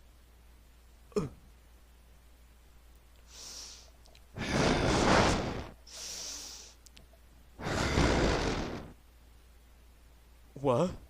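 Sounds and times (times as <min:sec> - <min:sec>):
person breathing in and sighing: 0:03.3 - 0:06.8, 0:07.6 - 0:09.0.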